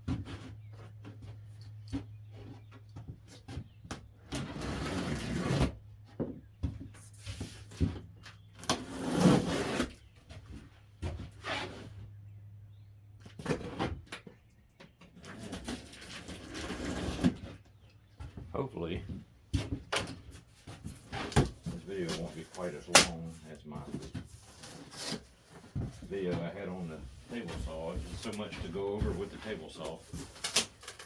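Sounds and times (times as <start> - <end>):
packaging rustling and scraping: 20.4 - 31.0.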